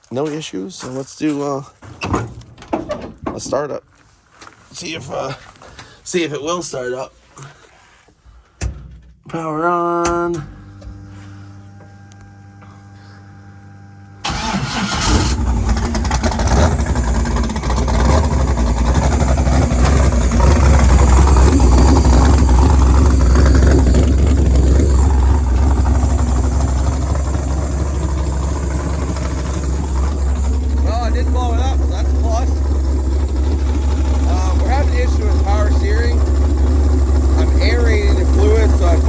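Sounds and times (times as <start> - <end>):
deep engine idle: 9.8 - 11.8, 14.2 - 39.0
engine cranking: 14.2 - 39.0.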